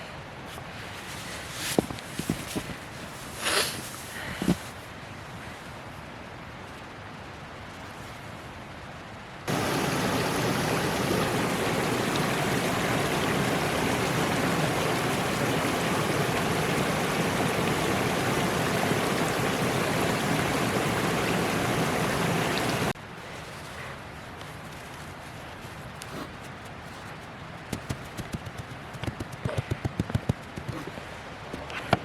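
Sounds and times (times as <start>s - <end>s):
rushing creek water: 9.5s - 24.2s.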